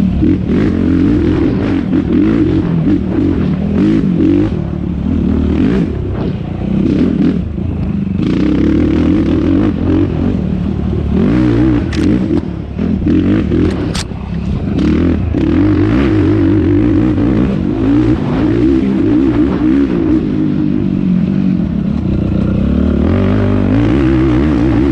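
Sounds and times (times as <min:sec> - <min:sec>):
quad engine revving: 0:00.0 - 0:24.9
sharp clicks: 0:11.9 - 0:12.5, 0:13.6 - 0:14.1.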